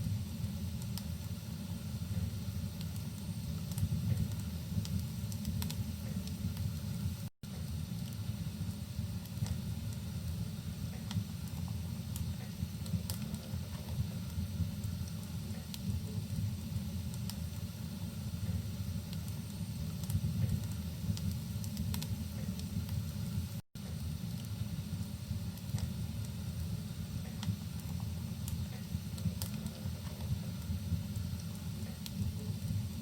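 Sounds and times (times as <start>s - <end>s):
rain hissing: 0.0s - 33.0s
wood fire crackling and popping: 0.0s - 33.0s.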